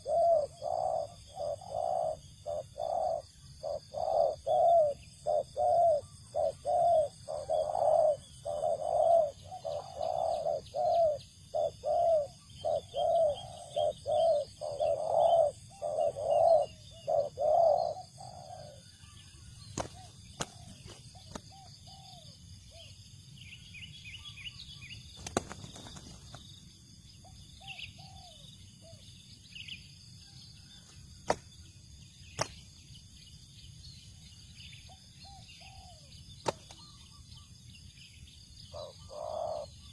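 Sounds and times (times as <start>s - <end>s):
dove cooing: 0.0s - 19.2s, 19.8s - 22.9s, 27.5s - 29.1s, 34.8s - 37.0s, 38.6s - 39.9s
small birds chirping: 0.0s - 39.9s.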